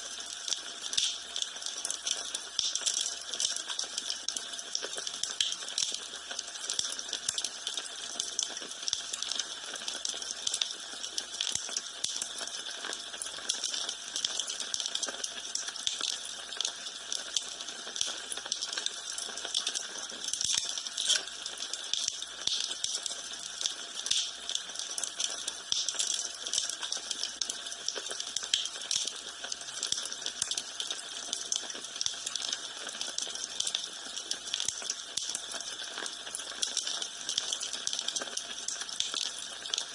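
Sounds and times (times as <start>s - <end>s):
wood fire crackling: 18.6s - 29.1s.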